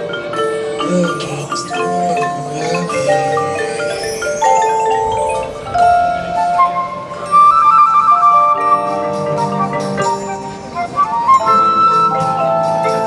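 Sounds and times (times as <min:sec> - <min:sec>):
marching band music: 0:00.0 - 0:07.5
mallet percussion: 0:00.0 - 0:13.0.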